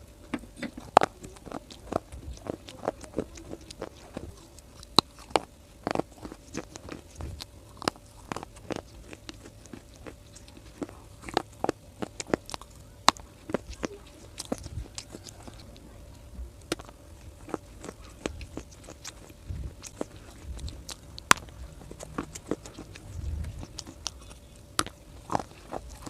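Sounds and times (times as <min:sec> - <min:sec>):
chewing brittle clay crunches: 0:00.0 - 0:26.0.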